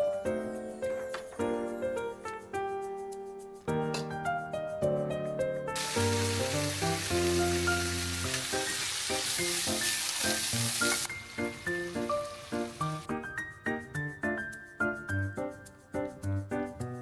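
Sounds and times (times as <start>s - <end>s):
background music: 0.0s - 17.0s
food sizzling in a frying pan: 5.8s - 13.1s.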